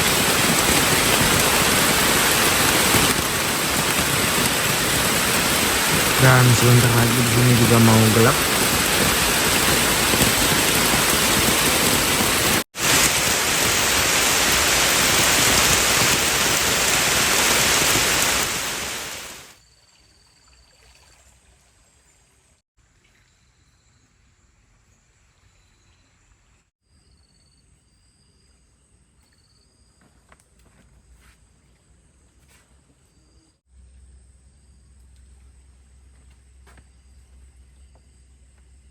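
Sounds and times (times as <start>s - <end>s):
heavy rain hissing: 0.0s - 19.5s.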